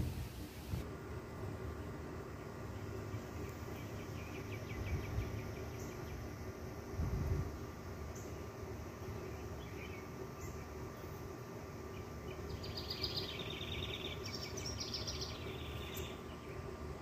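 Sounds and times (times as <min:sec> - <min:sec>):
outdoor background hiss: 0:00.0 - 0:17.0
songbird singing fast trills: 0:02.6 - 0:06.4, 0:07.6 - 0:11.2, 0:11.8 - 0:16.8.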